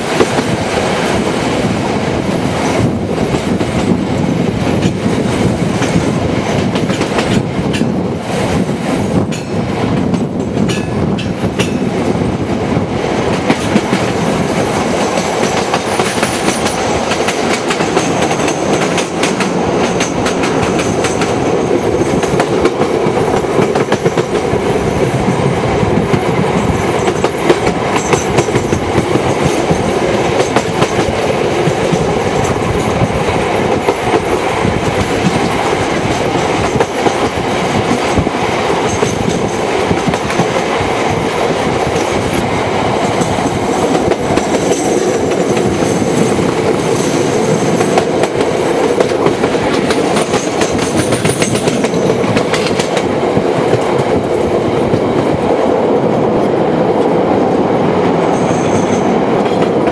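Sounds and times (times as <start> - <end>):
train wheels running on rails: 0.0 - 59.9
rapid clatter of track clicks: 2.4 - 11.8, 13.2 - 24.5, 26.0 - 55.5.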